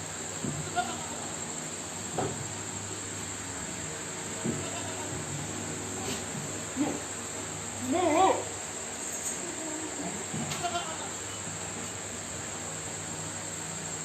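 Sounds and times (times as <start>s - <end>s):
insects droning: 0.0s - 14.0s
goats bleating: 0.6s - 1.3s, 4.4s - 5.2s, 10.5s - 11.2s.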